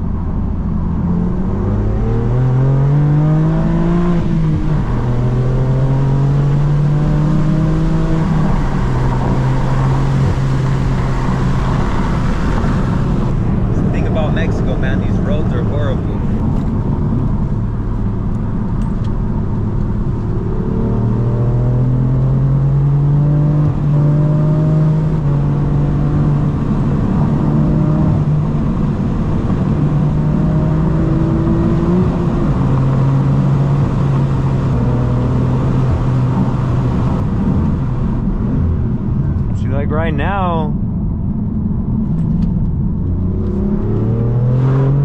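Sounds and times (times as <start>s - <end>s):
car engine accelerating: 0.0s - 45.0s.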